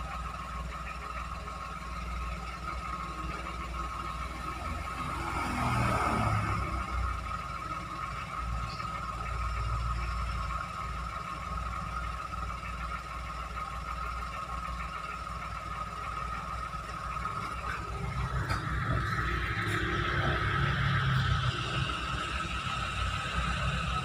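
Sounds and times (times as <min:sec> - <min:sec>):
car engine running: 0:00.0 - 0:24.0
engine whine: 0:00.0 - 0:24.0.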